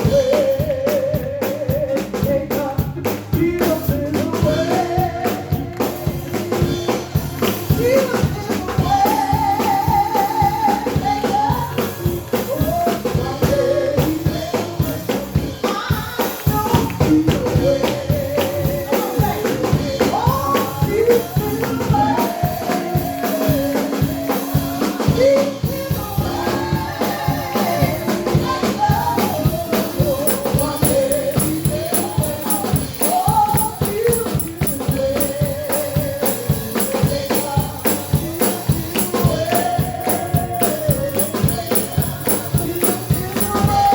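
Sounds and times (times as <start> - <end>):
person singing: 0.0 - 43.9
tambourine: 0.0 - 43.9
fast steady beat: 28.0 - 43.9.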